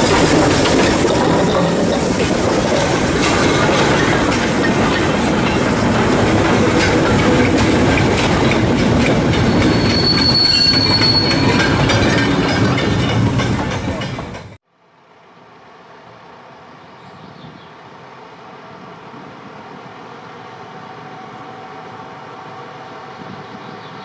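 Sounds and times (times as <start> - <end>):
train wagons rumbling past: 0.0 - 14.6
wheels clicking over rail joints: 0.0 - 14.6
high-pitched wheel squeal: 9.3 - 13.0.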